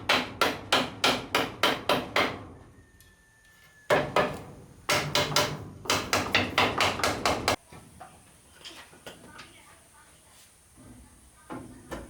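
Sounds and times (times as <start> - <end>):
hammer striking wood: 0.0 - 2.5, 3.9 - 7.6.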